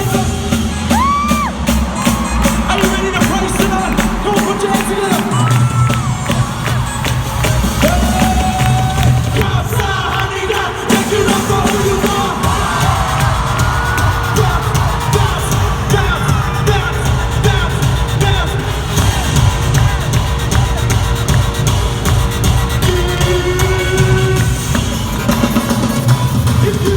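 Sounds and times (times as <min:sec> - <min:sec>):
crowd cheering: 0:00.0 - 0:26.9
live band playing pop music: 0:00.0 - 0:26.9
person singing: 0:07.7 - 0:26.9.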